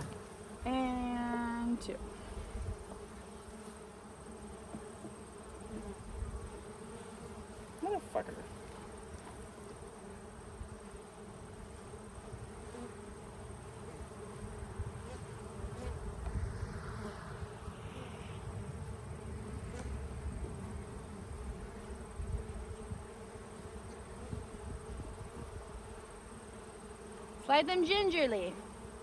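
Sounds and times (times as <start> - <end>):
honeybees buzzing: 0.0 - 29.0.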